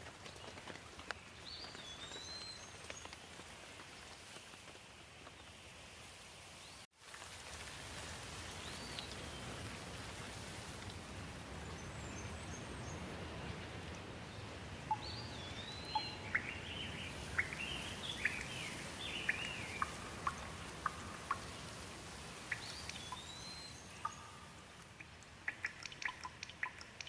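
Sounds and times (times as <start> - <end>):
steady rain hiss: 0.0 - 27.0
birds chirping and peeping: 14.4 - 24.6.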